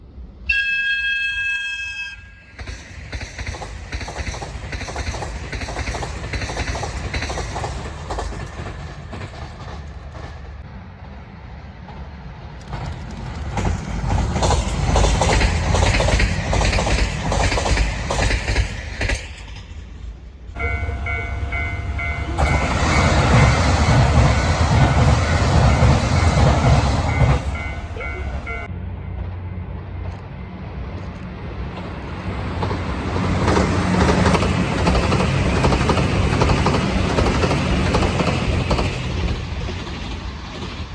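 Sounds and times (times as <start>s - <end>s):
train rumble: 0.0s - 40.9s
train wheels clattering over joints: 2.5s - 10.6s, 12.6s - 28.7s, 31.7s - 40.9s.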